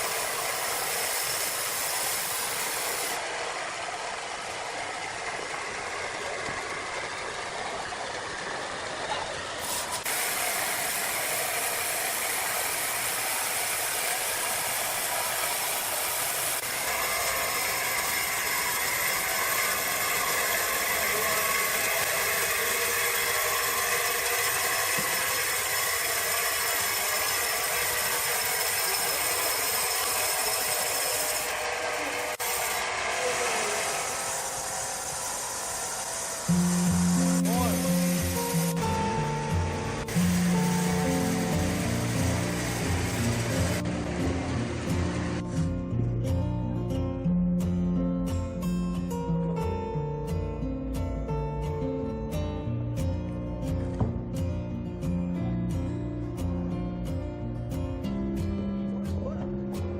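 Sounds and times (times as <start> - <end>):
sawmill machinery rattling: 0.0 - 45.6.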